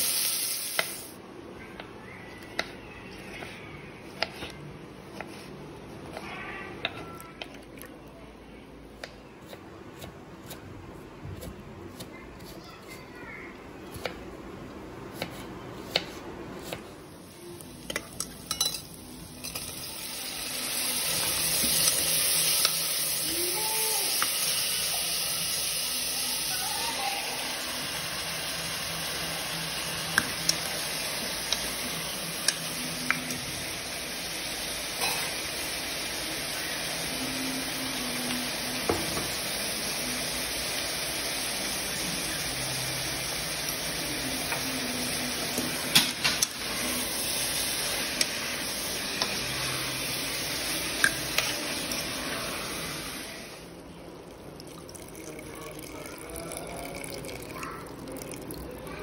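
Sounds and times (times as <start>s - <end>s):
frying sizzle: 0.0s - 1.2s, 17.2s - 53.7s
spoon clinking against pot: 17.9s - 19.7s.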